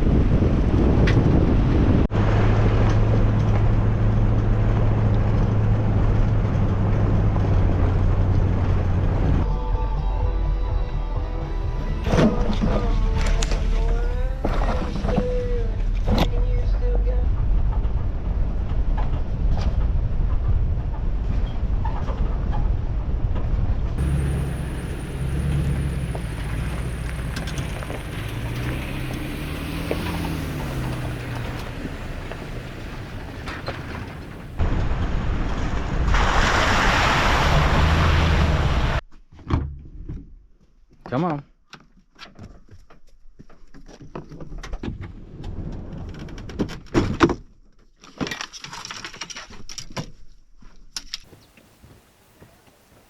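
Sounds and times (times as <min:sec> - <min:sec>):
wind and road noise: 0:00.0 - 0:09.5, 0:12.1 - 0:39.0, 0:44.1 - 0:47.4
low engine drone: 0:24.0 - 0:35.4.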